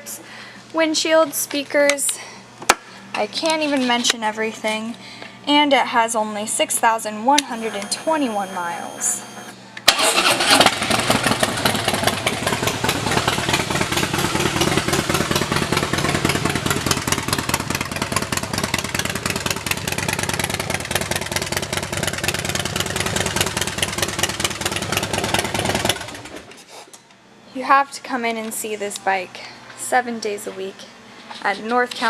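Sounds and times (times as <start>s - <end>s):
motorcycle engine idling: 10.4s - 26.5s.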